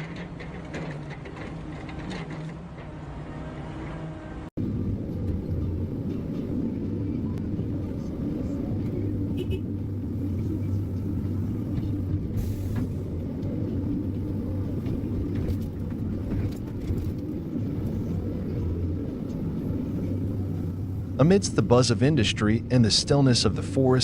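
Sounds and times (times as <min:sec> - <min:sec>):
heavy machine engine droning: 0:00.0 - 0:24.0.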